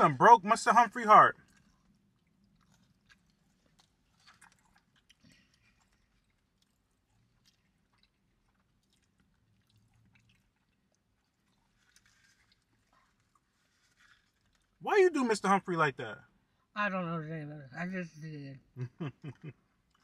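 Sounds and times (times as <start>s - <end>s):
faint chewing: 1.3s - 14.8s, 19.1s - 20.0s.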